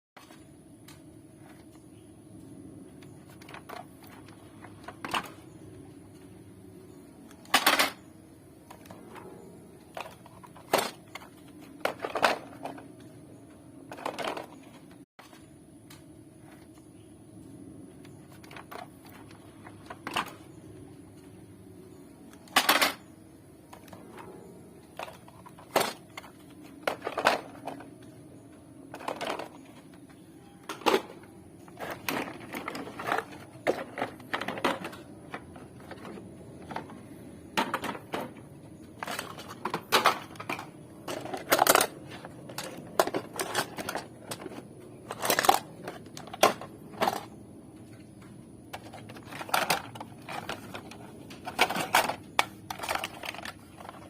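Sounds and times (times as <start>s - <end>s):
plastic toy trucks clicking: 2.9s - 16.8s, 18.0s - 54.0s.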